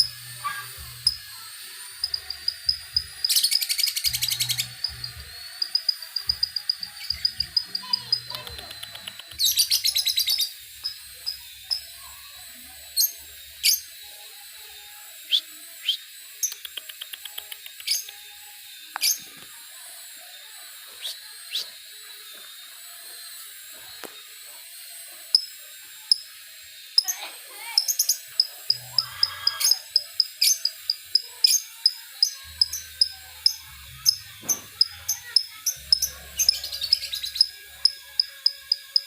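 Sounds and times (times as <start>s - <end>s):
lovebird stuttering chatter: 0.0s - 12.2s, 15.2s - 18.3s, 26.9s - 39.0s.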